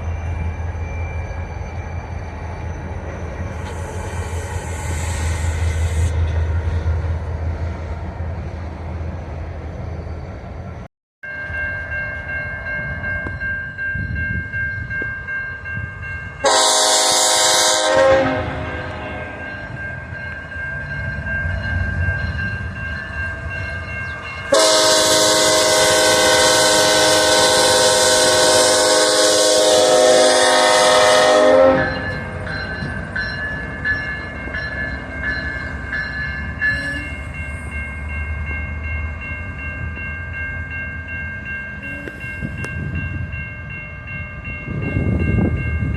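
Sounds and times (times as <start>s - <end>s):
train running past: 0.0s - 45.9s
locomotive air horn blasts: 16.4s - 19.2s, 24.5s - 32.2s.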